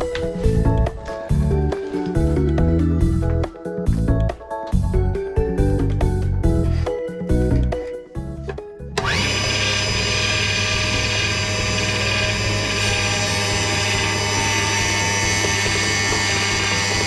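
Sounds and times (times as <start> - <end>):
power tool motor running: 9.0 - 17.0.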